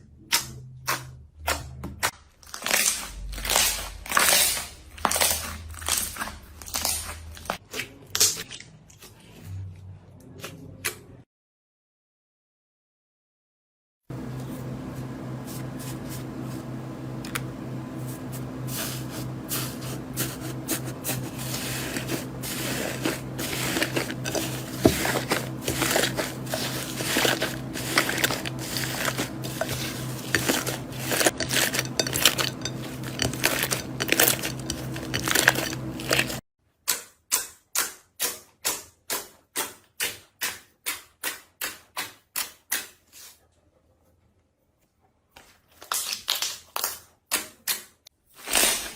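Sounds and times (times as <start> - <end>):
steady low hum: 14.1 - 36.4
slime squishing: 18.0 - 36.4.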